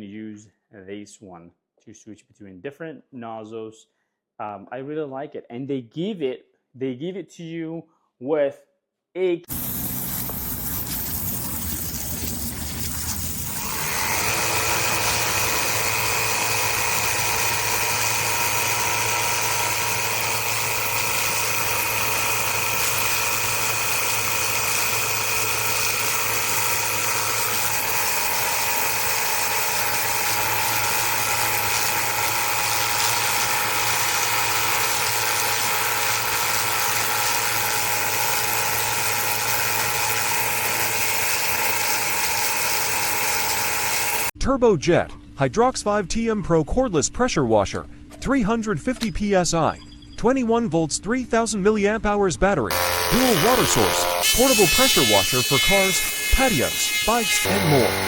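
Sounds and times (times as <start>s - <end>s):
pressure washer motor whining: 9.5s - 44.3s, 52.7s - 58.0s.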